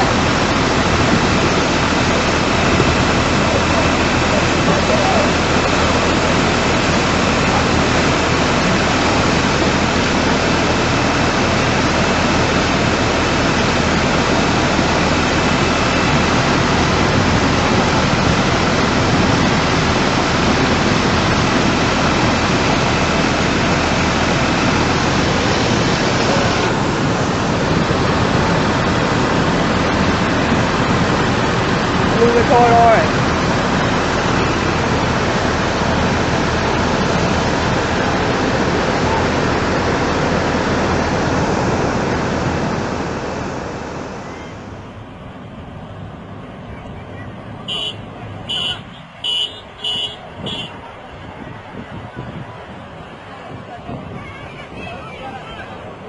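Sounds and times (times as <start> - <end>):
rushing floodwater: 0.0 - 56.0.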